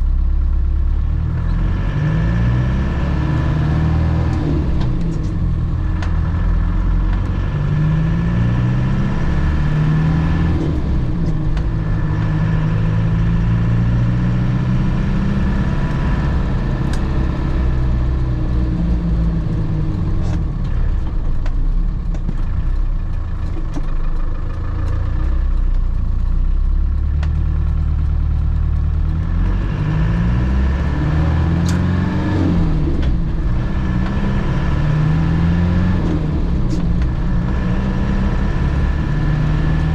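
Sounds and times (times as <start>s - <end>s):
car engine accelerating: 0.0s - 39.9s
road noise: 0.0s - 39.9s
sharp ticks: 16.9s - 30.7s.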